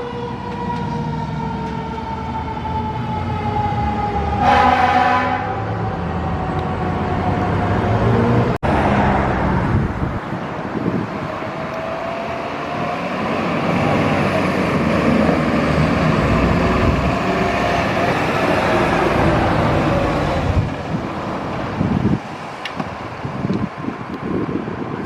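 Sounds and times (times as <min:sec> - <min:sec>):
fire engine passing: 0:00.0 - 0:25.0.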